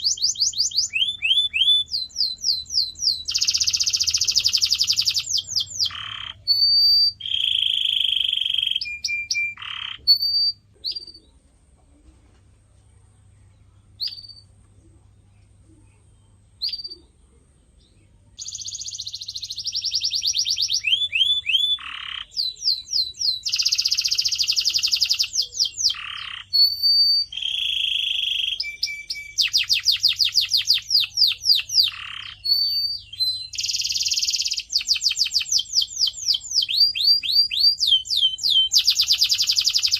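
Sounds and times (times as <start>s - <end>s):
canary singing trills: 0.0s - 11.9s, 13.0s - 39.9s.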